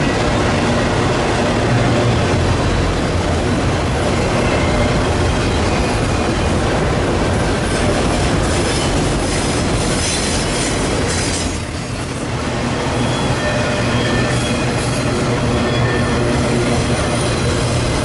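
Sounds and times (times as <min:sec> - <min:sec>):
train cars rumbling on rails: 0:00.0 - 0:18.0.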